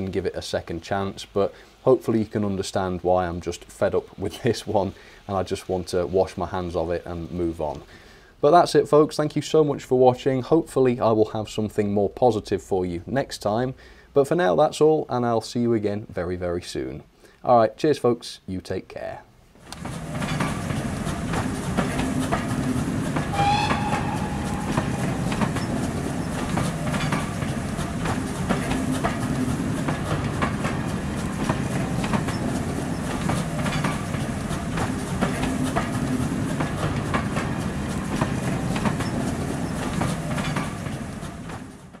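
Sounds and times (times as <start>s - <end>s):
train rumbling past: 19.8s - 42.0s
short falling tone: 23.3s - 26.6s.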